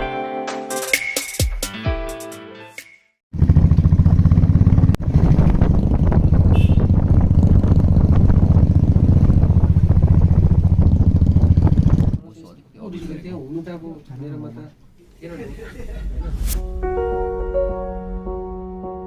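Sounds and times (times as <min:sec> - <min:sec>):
motorcycle engine running: 0:03.3 - 0:12.2.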